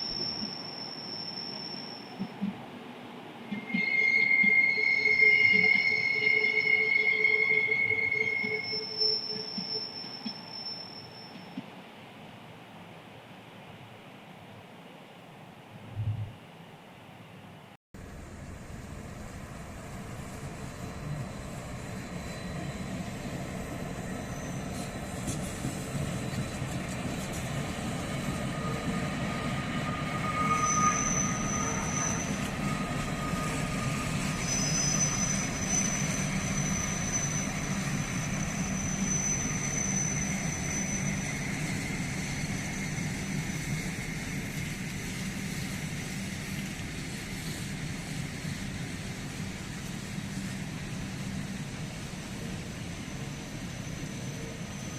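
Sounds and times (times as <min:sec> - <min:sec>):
high thin wheel squeal: 0:00.0 - 0:02.3, 0:03.5 - 0:11.6, 0:21.1 - 0:26.6, 0:28.5 - 0:46.1, 0:53.0 - 0:54.9
train rumbling: 0:00.0 - 0:11.7, 0:18.0 - 0:54.9.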